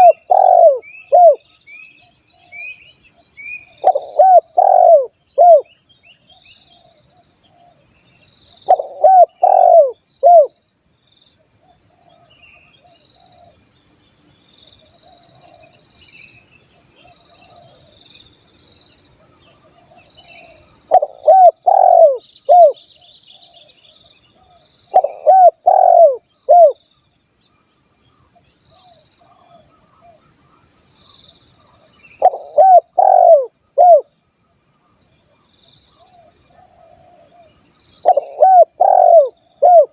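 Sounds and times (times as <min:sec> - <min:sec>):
dove cooing: 0:00.0 - 0:01.4, 0:03.8 - 0:05.7, 0:08.7 - 0:10.5, 0:19.7 - 0:23.6, 0:24.4 - 0:26.8, 0:32.2 - 0:34.1, 0:36.1 - 0:39.9
faint bird chirps: 0:00.0 - 0:39.9
high insect drone: 0:00.0 - 0:39.9.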